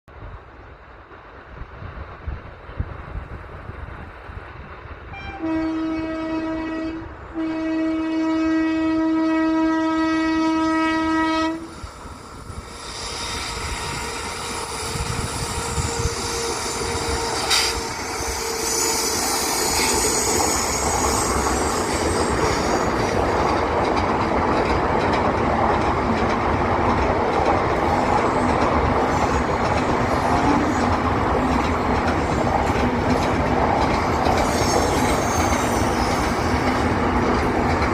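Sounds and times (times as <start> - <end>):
train wheels rumbling on rail: 0.1 - 37.9
train horn blasts: 5.1 - 11.8
high wheel squeal: 11.7 - 23.0, 34.3 - 36.8.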